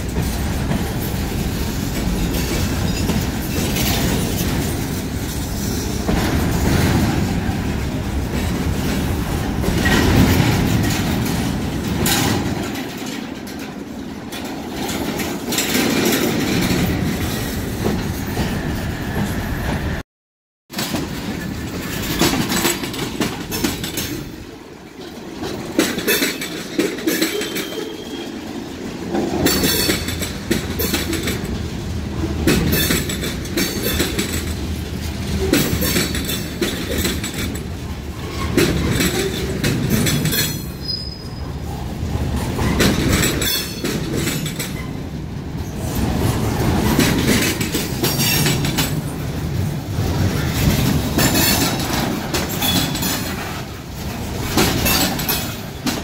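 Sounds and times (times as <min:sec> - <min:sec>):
train cars rumbling past: 0:00.0 - 0:20.0, 0:20.7 - 0:56.0
wheels clacking over rail joints: 0:00.0 - 0:20.0, 0:20.7 - 0:56.0.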